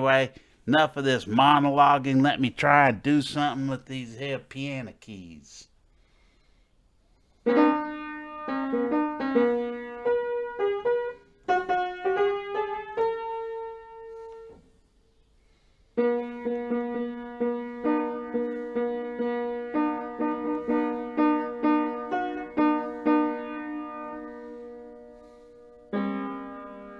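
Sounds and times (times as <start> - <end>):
halting piano melody: 7.5 - 14.6, 16.0 - 26.9.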